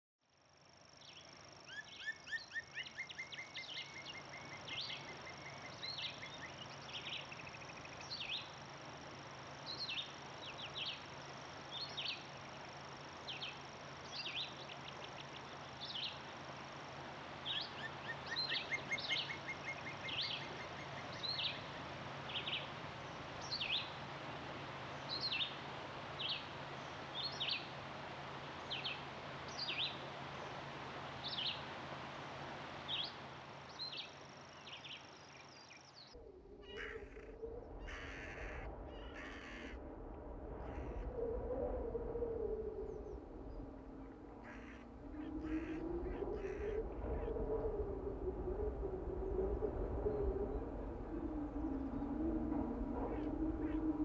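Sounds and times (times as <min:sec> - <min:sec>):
background hiss: 0:00.4 - 0:40.1
birds singing: 0:17.4 - 0:24.0, 0:24.9 - 0:25.6, 0:26.2 - 0:27.8, 0:28.6 - 0:30.6, 0:31.2 - 0:31.6, 0:42.8 - 0:54.0.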